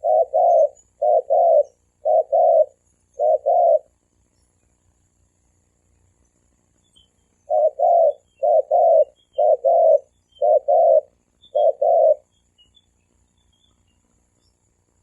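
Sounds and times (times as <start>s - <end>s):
dove cooing: 0.0s - 4.0s, 7.5s - 12.3s.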